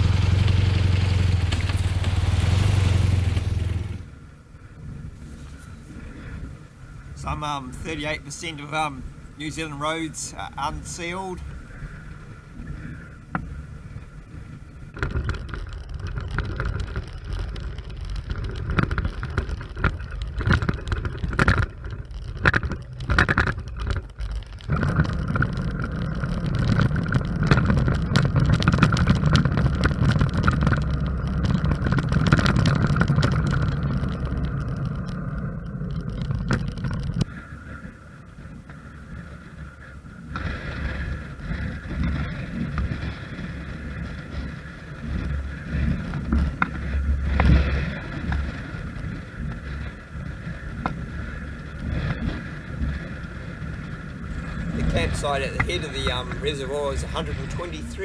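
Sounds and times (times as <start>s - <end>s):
motorcycle engine: 0.0s - 12.2s, 14.0s - 37.2s, 52.0s - 58.0s
tyres on gravel road: 0.0s - 58.0s.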